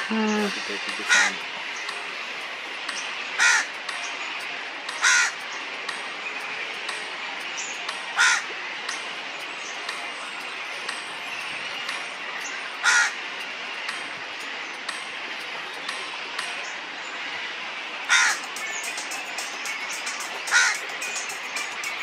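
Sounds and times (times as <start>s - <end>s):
bird calling: 0.0s - 1.4s, 18.1s - 19.0s, 19.8s - 21.6s.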